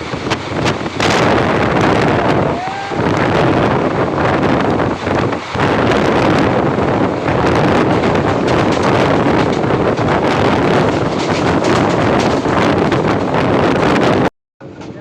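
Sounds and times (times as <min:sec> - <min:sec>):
moving train rumble: 0:00.0 - 0:15.0
wind buffeting microphone: 0:00.0 - 0:15.0.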